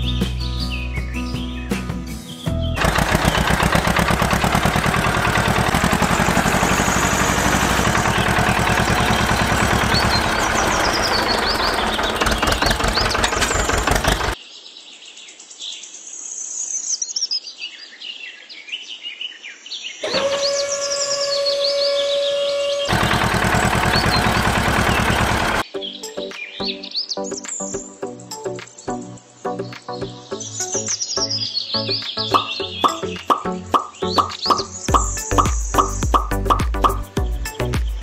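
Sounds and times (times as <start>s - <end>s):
birds chirping: 0.0s - 14.4s, 20.0s - 25.6s, 29.6s - 38.0s
tractor engine running: 2.8s - 14.4s, 20.0s - 25.6s, 33.8s - 37.2s.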